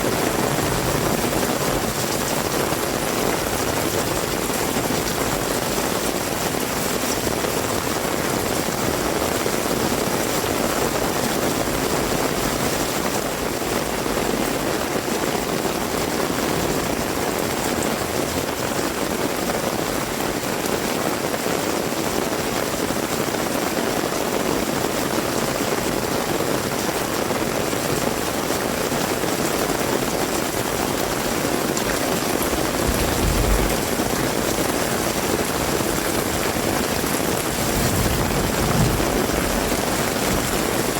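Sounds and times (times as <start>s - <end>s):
heavy rain: 0.0s - 40.9s
low rumble: 32.5s - 34.4s.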